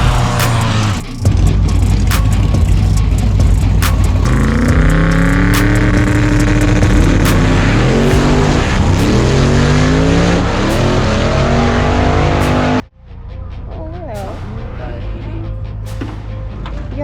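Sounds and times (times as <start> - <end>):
drag race car engine at full throttle: 0.0 - 12.9.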